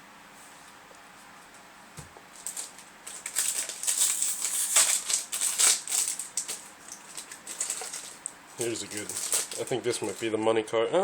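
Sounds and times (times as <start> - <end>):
foil wrapper crinkling: 2.3 - 10.4.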